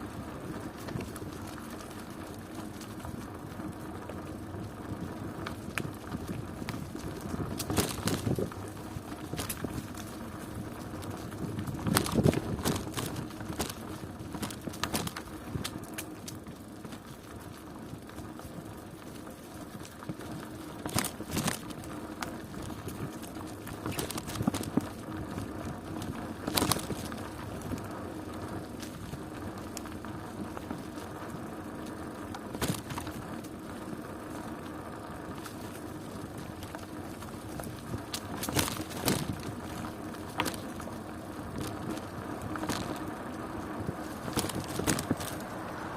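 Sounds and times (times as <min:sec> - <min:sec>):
bicycle knocks and rattles: 0:00.0 - 0:34.6, 0:35.2 - 0:45.8
bicycle rolling: 0:00.0 - 0:45.9.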